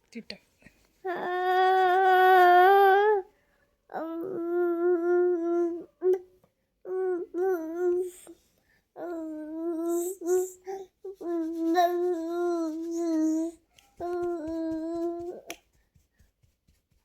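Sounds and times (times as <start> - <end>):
small child singing wordlessly: 1.1 - 3.3, 3.9 - 6.3, 6.9 - 15.8.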